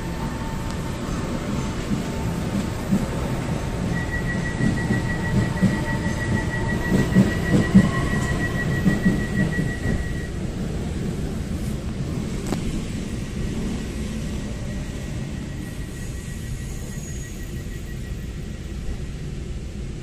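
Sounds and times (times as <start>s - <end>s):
steady high tone: 0.0s - 10.6s, 13.0s - 19.0s
train rumbling on track: 0.0s - 20.0s.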